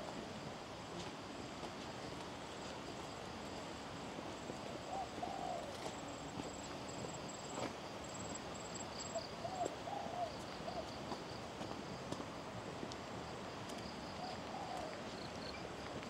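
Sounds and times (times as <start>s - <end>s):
bird calling: 4.9s - 5.7s, 9.0s - 10.9s.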